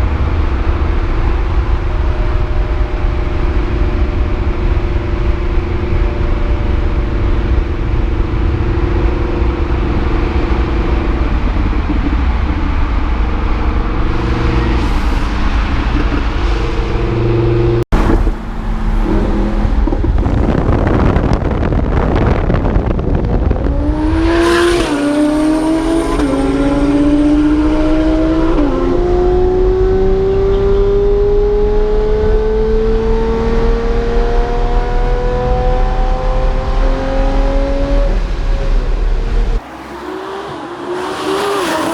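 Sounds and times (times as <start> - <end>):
car engine accelerating: 0.0 - 41.9
loud rush of noise: 7.5 - 27.9, 39.2 - 41.9.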